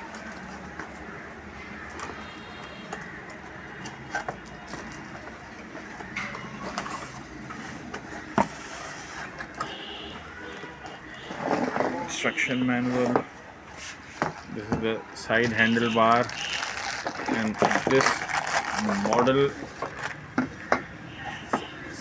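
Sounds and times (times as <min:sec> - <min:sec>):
steady background noise: 0:00.0 - 0:22.0
cardboard packaging rustling: 0:15.3 - 0:20.3.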